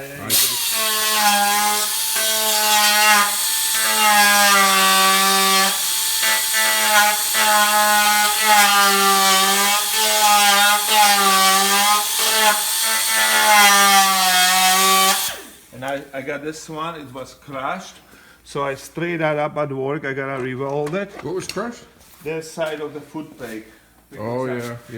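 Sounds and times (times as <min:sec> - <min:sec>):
power tool cutting metal: 0:00.0 - 0:15.6.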